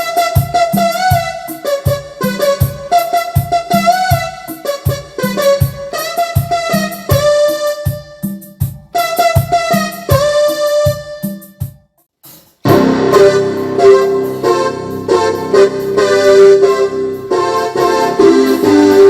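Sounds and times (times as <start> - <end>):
electric piano synth phrase: 12.6 - 19.0
fuller synthesizer patch: 12.6 - 19.0
repeated synth bass notes: 12.6 - 19.0.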